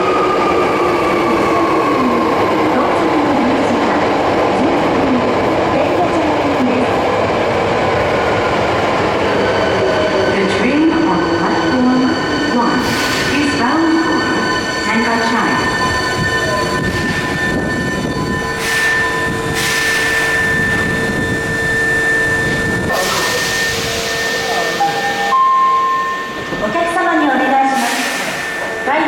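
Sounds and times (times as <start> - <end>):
train wheel squeal: 9.4 - 29.0.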